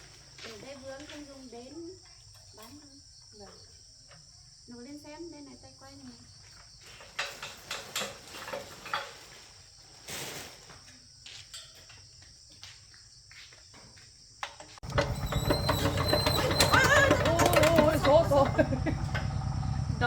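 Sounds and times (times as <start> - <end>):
tractor engine rumbling: 6.4 - 9.7, 14.7 - 20.0
metal clanks of hand crank: 6.9 - 9.2, 14.5 - 19.8.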